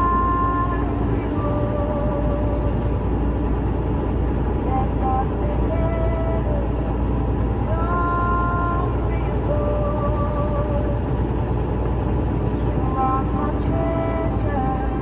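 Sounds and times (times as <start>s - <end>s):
truck road and engine rumble: 0.0s - 15.0s.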